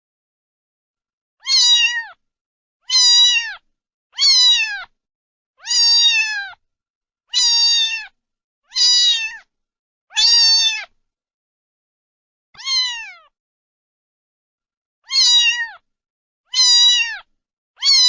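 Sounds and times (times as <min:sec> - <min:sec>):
cat meowing: 0:01.4 - 0:02.2, 0:02.8 - 0:04.9, 0:05.6 - 0:06.6, 0:07.3 - 0:09.5, 0:10.1 - 0:11.0, 0:12.6 - 0:13.4, 0:15.0 - 0:15.8, 0:16.5 - 0:18.0.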